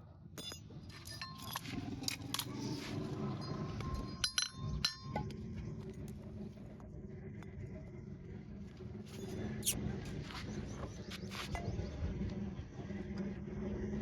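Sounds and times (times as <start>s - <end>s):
metallic clinks and taps: 0.4s - 5.4s.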